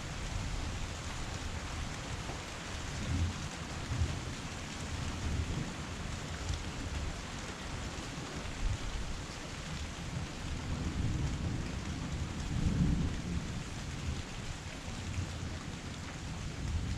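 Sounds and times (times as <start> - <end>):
heavy rain: 0.0 - 16.9.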